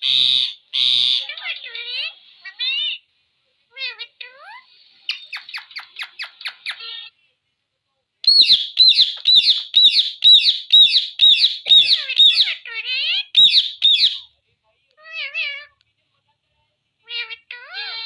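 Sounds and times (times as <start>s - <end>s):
parrot squawking: 0.0s - 3.0s, 3.7s - 7.2s, 8.2s - 14.3s, 15.0s - 15.7s, 17.0s - 18.0s
parrot warbling call: 8.3s - 14.3s.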